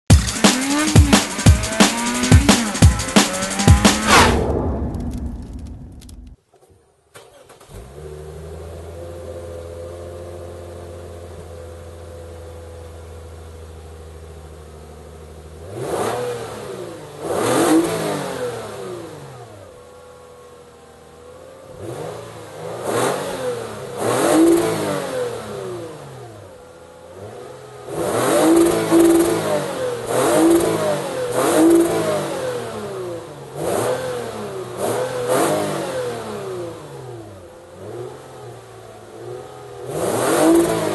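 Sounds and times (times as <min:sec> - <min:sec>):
car engine revving: 0:00.0 - 0:06.4, 0:15.5 - 0:20.3, 0:21.3 - 0:40.9
car engine starting and idling: 0:00.0 - 0:17.6.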